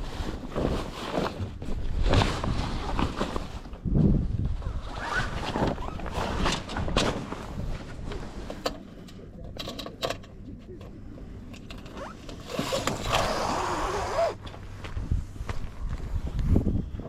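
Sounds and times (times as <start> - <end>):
rustling: 0.0 - 8.6
clicks and knocks of rigging: 8.5 - 13.3.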